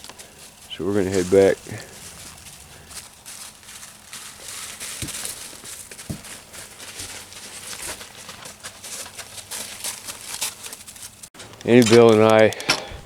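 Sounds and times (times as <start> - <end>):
footsteps and rustling: 0.0 - 13.0.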